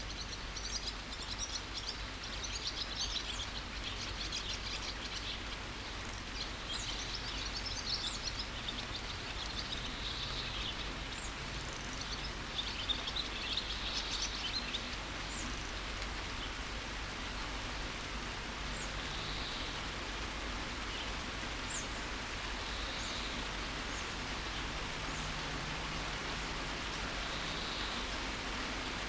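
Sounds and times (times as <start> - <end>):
birds chirping: 0.0 - 29.0
rain falling in a forest: 0.0 - 29.0.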